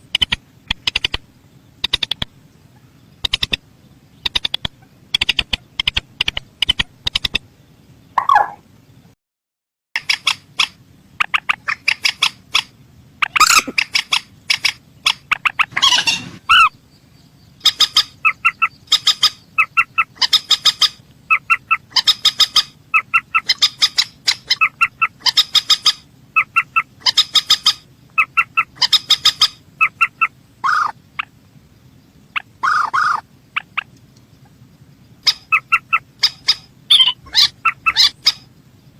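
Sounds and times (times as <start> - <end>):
rail bird clucking calls: 0.0 - 7.5, 8.2 - 8.6, 10.0 - 16.8, 17.6 - 31.4, 32.3 - 38.5.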